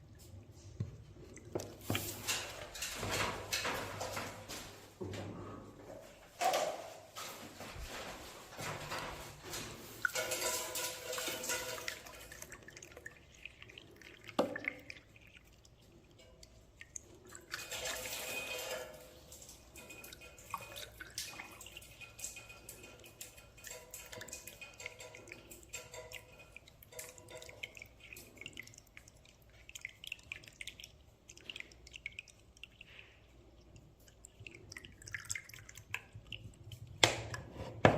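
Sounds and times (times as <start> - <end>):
water dripping: 0.0 - 4.7, 6.0 - 37.6
water splashing into drain: 8.6 - 37.9.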